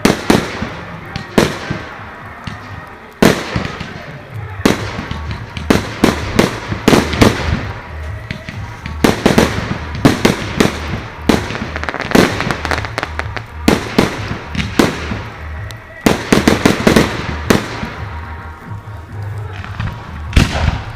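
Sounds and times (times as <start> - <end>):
fireworks bangs and crackling: 0.0 - 20.9.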